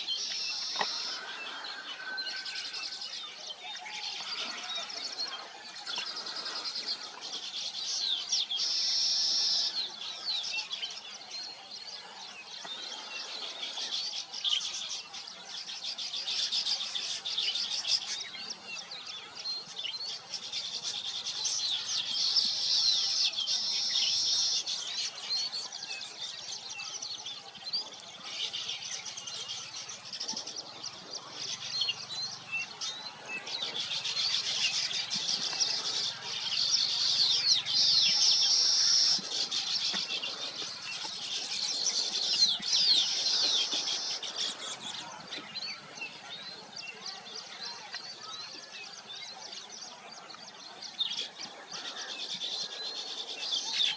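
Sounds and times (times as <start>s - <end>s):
birds chattering: 0.0s - 3.0s, 27.5s - 53.9s.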